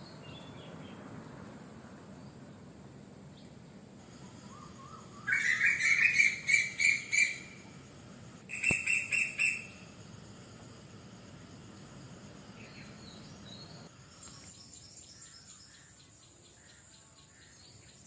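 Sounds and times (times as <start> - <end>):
insects humming: 0.1 - 18.0
bird chirping rapidly: 4.3 - 7.6, 8.5 - 9.9.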